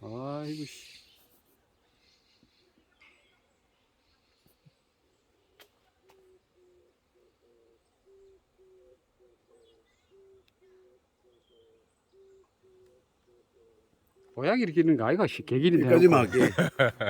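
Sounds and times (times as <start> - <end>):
owl hooting: 6.1 - 14.4.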